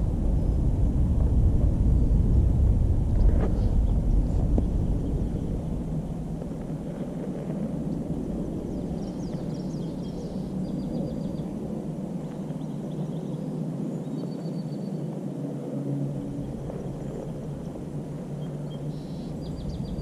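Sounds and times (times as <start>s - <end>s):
low outdoor rumble: 0.0s - 14.4s, 15.1s - 20.0s
small birds chirping: 7.8s - 11.6s, 16.2s - 20.0s.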